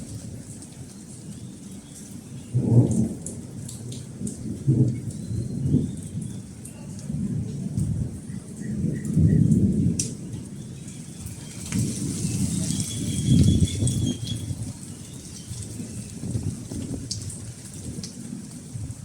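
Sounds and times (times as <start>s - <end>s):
steady rain: 0.0s - 19.0s
thunder rumbling: 7.1s - 19.0s.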